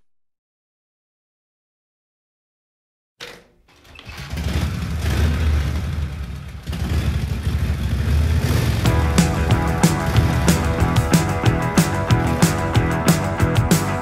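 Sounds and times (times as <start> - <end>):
car engine running: 7.4 - 14.0
music with drum hits: 8.8 - 14.0.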